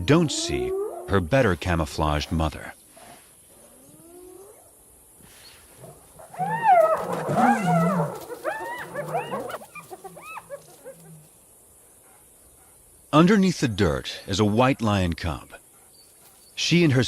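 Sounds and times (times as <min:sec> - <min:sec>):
faint rising hyena call: 0:05.8 - 0:11.3
hyenas yelping: 0:05.8 - 0:11.4.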